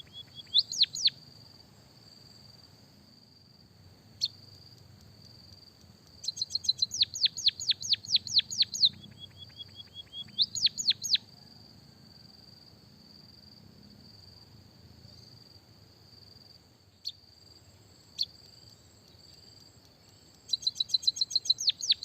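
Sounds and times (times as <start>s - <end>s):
songbird singing: 0.0s - 2.6s, 4.1s - 11.6s, 15.0s - 22.0s.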